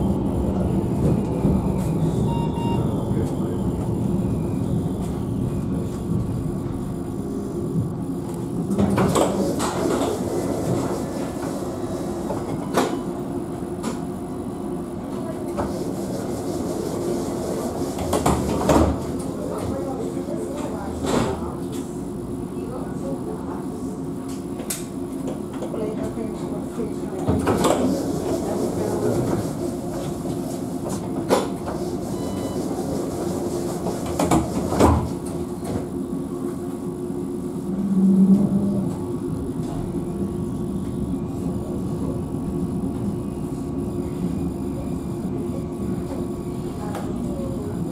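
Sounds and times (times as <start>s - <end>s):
tram hum: 0.0s - 19.4s, 27.6s - 47.9s.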